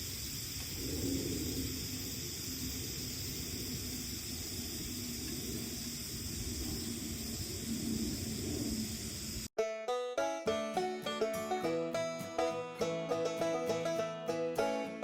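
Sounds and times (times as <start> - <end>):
steady hiss: 0.0 - 9.5.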